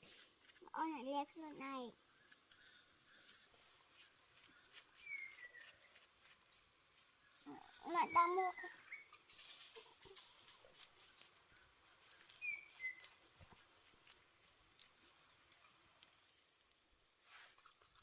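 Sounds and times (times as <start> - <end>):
faint ticks: 13.0 - 16.9.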